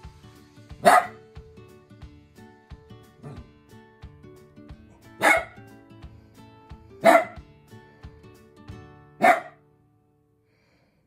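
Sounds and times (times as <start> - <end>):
small dog barking: 0.8 - 1.2, 5.2 - 5.6, 7.0 - 7.4, 9.2 - 9.6.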